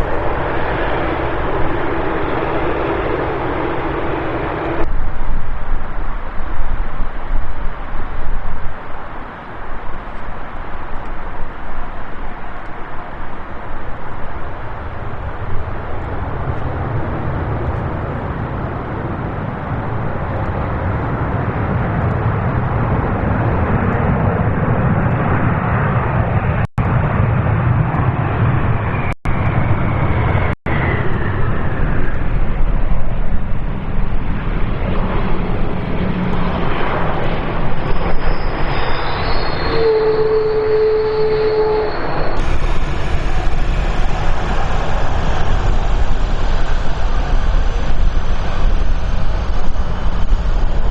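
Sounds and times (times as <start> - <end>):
jet engines roaring: 0.0 - 50.9
high whine gliding down: 26.3 - 50.9.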